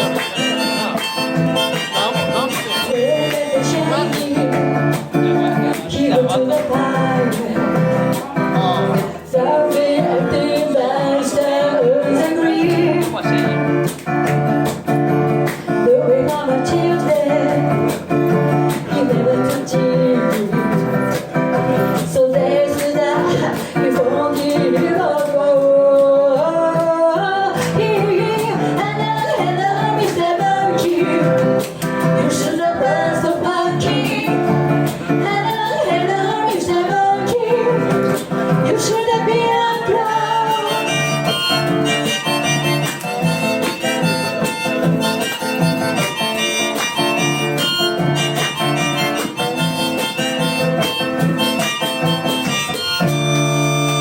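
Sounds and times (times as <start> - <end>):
harmonica: 0.0 - 3.7, 39.2 - 54.0
person singing: 0.0 - 13.6, 15.6 - 51.8
guitar accompaniment: 0.0 - 54.0.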